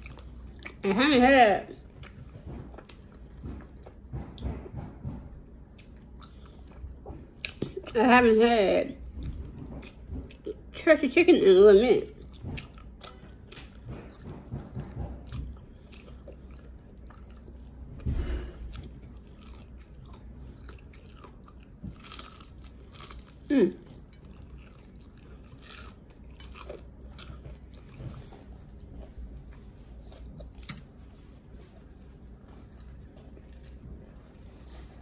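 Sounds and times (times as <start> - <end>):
chewing and crunching food: 0.0 - 35.0.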